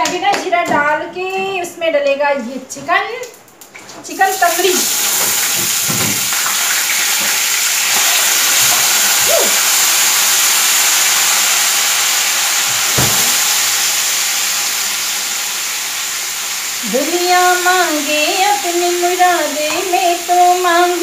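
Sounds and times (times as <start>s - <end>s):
meat sizzling in hot oil: 4.2s - 21.0s.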